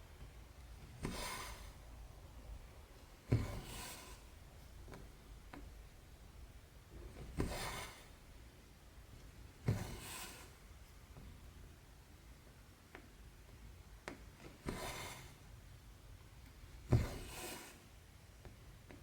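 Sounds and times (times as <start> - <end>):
thread rasping through fabric: 0.2 - 2.0.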